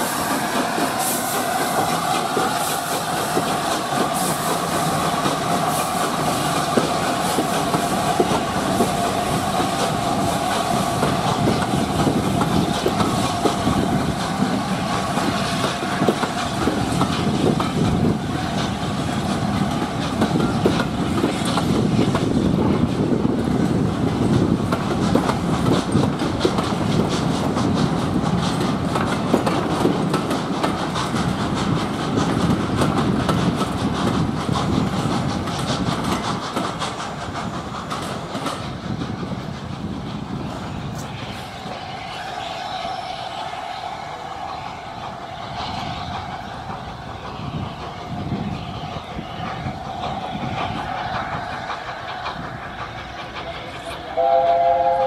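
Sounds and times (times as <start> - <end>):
train coaches rolling past: 0.0 - 55.0
steady high whine: 40.6 - 54.9.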